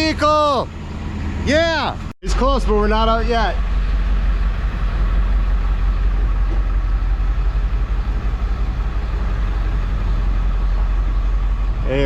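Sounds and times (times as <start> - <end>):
tow truck engine rumbling: 0.0 - 12.0.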